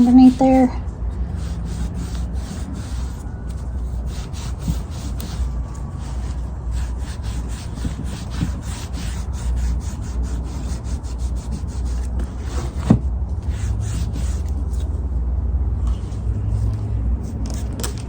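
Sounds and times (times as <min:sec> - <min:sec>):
sandpaper rubbing on wood: 0:00.0 - 0:03.2, 0:03.8 - 0:14.9.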